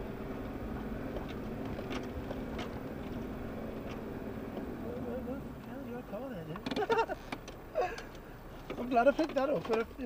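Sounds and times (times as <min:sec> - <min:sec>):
engine running at low revs: 0:00.0 - 0:06.0.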